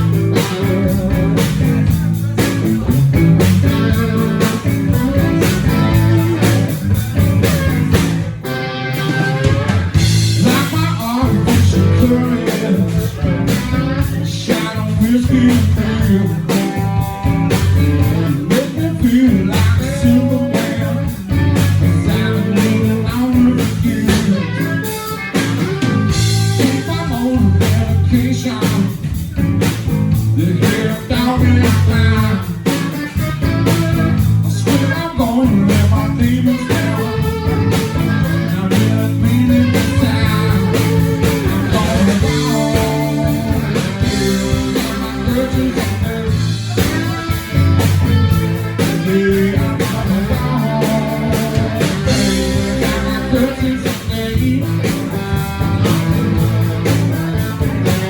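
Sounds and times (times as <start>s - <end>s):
blues-rock band playing: 0.0s - 58.0s.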